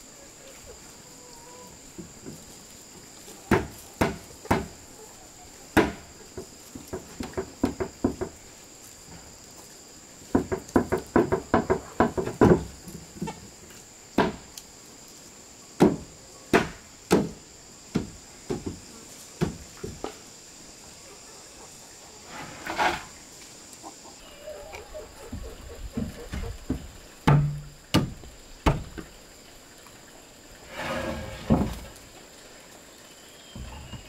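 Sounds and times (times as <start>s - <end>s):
high insect drone: 0.0s - 34.0s
tool knocking on wood: 10.3s - 12.7s, 26.0s - 28.9s.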